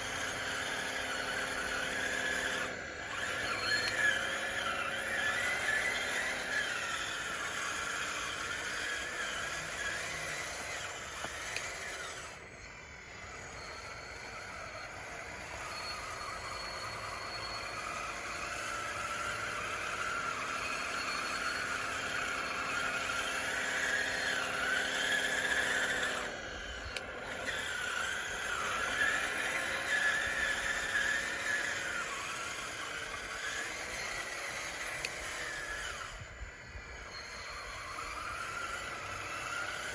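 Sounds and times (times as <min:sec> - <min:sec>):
small electric motors whining: 0:00.0 - 0:39.9.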